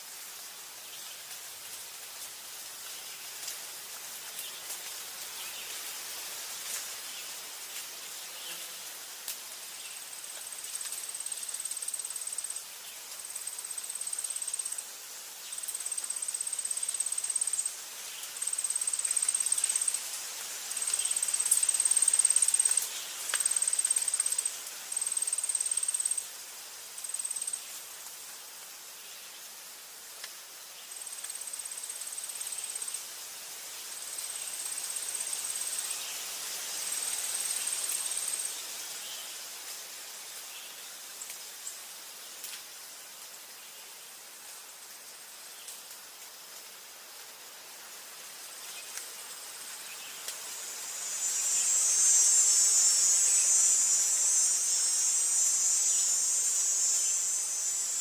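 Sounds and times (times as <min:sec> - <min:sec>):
forest ambience hiss: 0:00.0 - 0:58.0
faint ticks: 0:10.2 - 0:12.6, 0:18.3 - 0:26.2, 0:30.2 - 0:30.4, 0:31.0 - 0:32.7, 0:48.8 - 0:49.2
insect trilling: 0:10.6 - 0:12.6, 0:13.4 - 0:14.8, 0:15.5 - 0:17.8, 0:18.4 - 0:20.1, 0:20.7 - 0:26.3, 0:27.0 - 0:27.7, 0:48.7 - 0:58.0.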